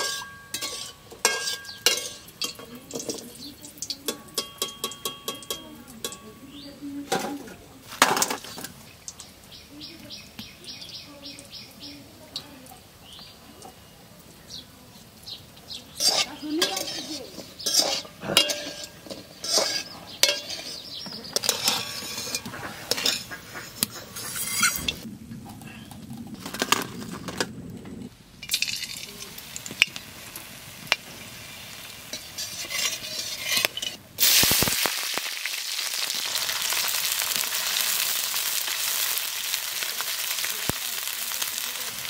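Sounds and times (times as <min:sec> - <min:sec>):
metal spatula scraping a pan: 0:00.0 - 0:03.4, 0:15.9 - 0:25.1, 0:30.9 - 0:34.7
onions sizzling loudly in oil: 0:00.0 - 0:05.0, 0:15.1 - 0:25.0, 0:28.4 - 0:42.0
oil sizzling: 0:00.0 - 0:42.0.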